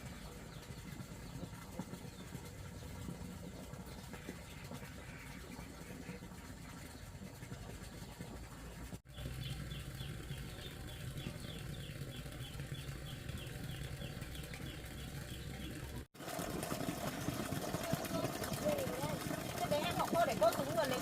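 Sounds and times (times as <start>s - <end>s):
bird chirping: 9.1s - 16.0s.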